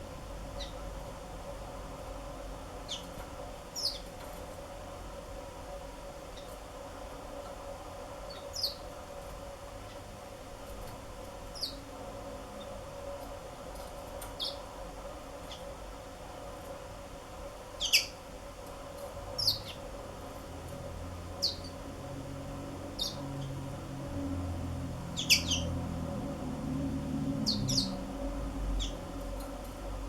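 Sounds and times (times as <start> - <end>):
steady background hum: 0.0 - 30.0
canaries chirping: 14.3 - 14.6, 17.8 - 18.2, 19.4 - 19.8, 21.4 - 21.8, 23.0 - 23.6, 25.1 - 25.8, 27.4 - 28.1, 28.8 - 29.1.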